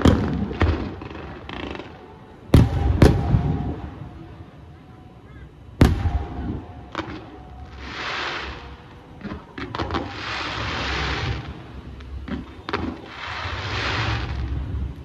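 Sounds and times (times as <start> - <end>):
fireworks bangs: 0.0 - 4.0, 5.8 - 11.6, 12.3 - 14.7
fireworks hissing crackle: 0.0 - 4.4, 5.8 - 15.0
low rumble: 8.6 - 15.0.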